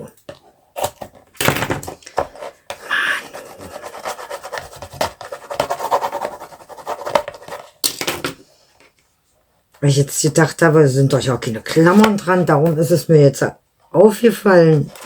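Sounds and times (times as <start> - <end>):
paper rubbing and scratching: 2.4 - 7.7.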